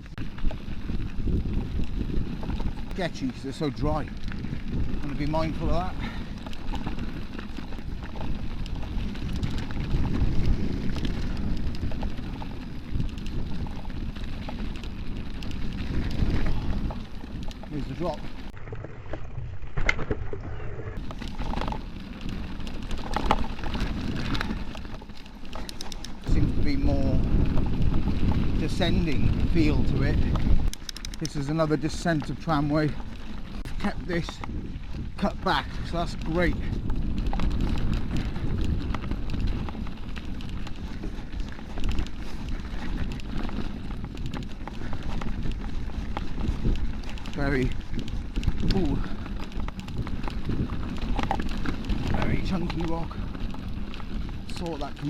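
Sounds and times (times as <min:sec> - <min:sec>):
bike chain and frame rattling: 0:00.0 - 0:18.6, 0:21.0 - 0:55.0
wind and rolling rumble: 0:00.0 - 0:55.0
tyres crunching over rock: 0:21.0 - 0:55.0.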